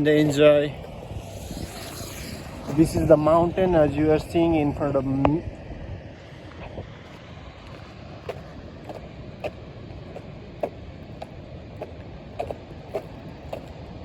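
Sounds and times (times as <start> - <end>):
wind rumble on microphone: 0.0 - 14.0
footsteps walking: 7.1 - 13.7.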